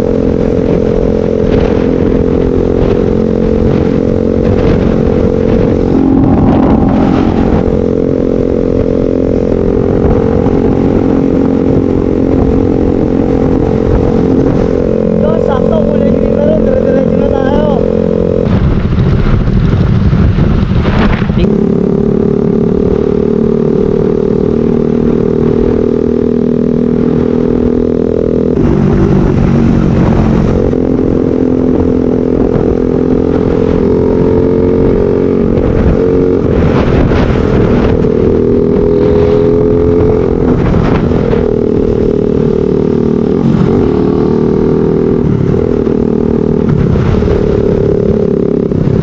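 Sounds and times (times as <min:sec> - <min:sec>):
motorcycle engine running: 0:00.0 - 0:49.0
wind and road noise: 0:00.0 - 0:49.0.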